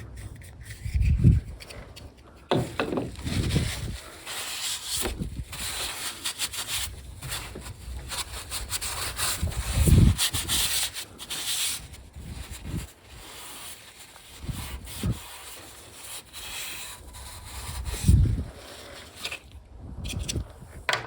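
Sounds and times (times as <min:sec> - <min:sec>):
rubbing and scraping handling noise: 0:00.0 - 0:21.0
dull thump: 0:02.5 - 0:03.5.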